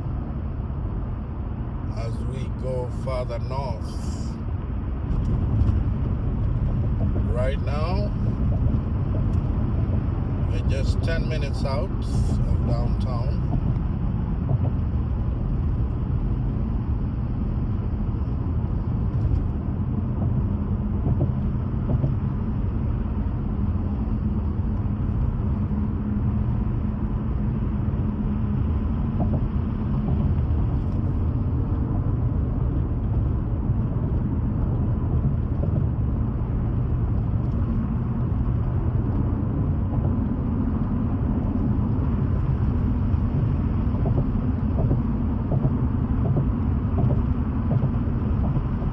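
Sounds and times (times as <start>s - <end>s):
car engine rumble: 0.0s - 48.9s
road noise: 0.0s - 48.9s.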